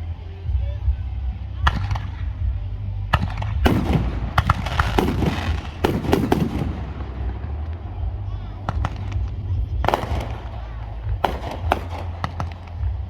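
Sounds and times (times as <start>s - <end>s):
low rumble: 0.0s - 13.0s
fireworks bangs and crackling: 3.2s - 13.0s.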